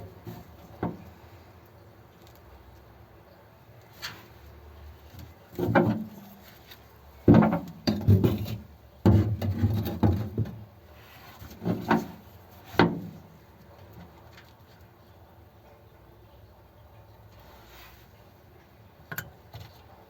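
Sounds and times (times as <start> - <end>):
tools knocking and scraping: 5.5 - 6.6, 7.3 - 10.6.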